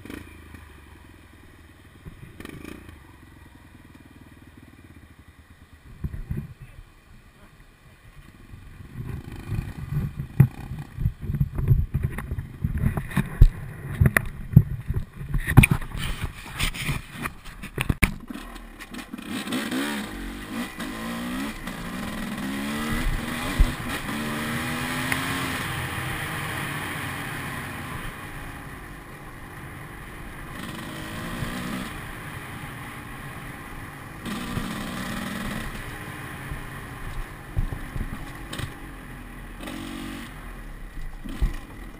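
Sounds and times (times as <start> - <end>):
dirt bike engine revving: 2.3 - 3.0, 8.7 - 11.3, 17.8 - 28.6, 30.3 - 37.0, 37.6 - 40.6, 41.2 - 41.9.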